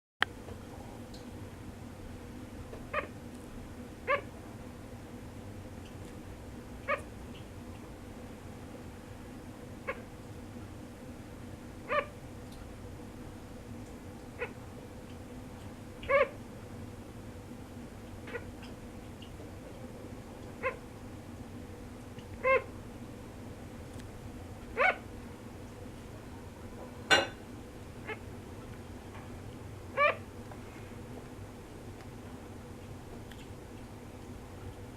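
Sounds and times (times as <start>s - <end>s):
sugar glider crying: 2.9s - 3.2s, 4.0s - 4.4s, 6.8s - 7.1s, 9.8s - 10.1s, 11.8s - 12.2s, 14.4s - 14.6s, 16.0s - 16.4s, 18.2s - 18.6s, 20.6s - 20.9s, 22.4s - 22.8s, 24.7s - 25.1s, 28.0s - 28.3s, 29.9s - 30.3s.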